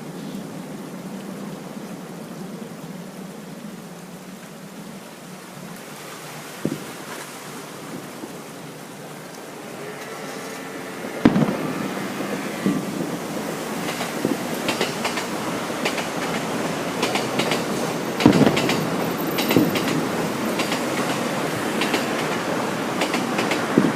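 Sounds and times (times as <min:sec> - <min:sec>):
firework crackling: 0:09.4 - 0:23.9
firework shell bang: 0:11.2 - 0:12.0, 0:18.2 - 0:18.8.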